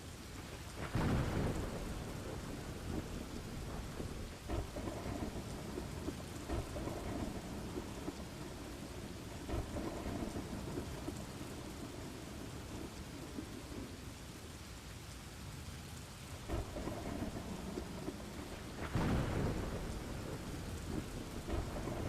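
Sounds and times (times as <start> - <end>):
steady rain: 0.0 - 22.0
low rolling thunder: 0.6 - 14.1, 16.4 - 22.0.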